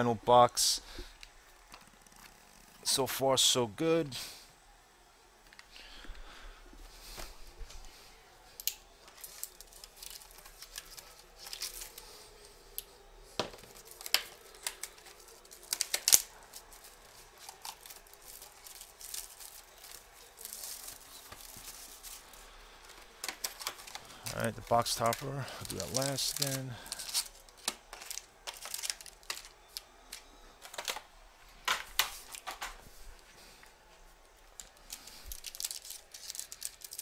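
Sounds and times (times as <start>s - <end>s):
plastic wrap crinkling: 8.6s - 31.1s, 34.5s - 37.0s.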